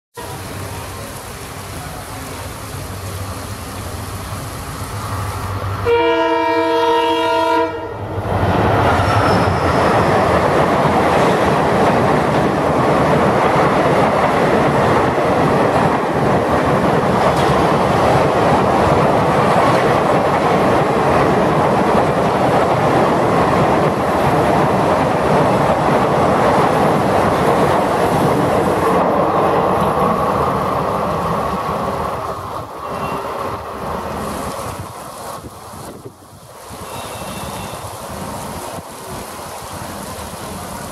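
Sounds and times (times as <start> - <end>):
diesel locomotive engine: 0.2 - 40.9
heavy rain falling: 0.2 - 40.9
train horn: 5.8 - 8.1, 32.8 - 33.4, 36.8 - 37.9
train wheels clattering on rails: 8.3 - 40.9.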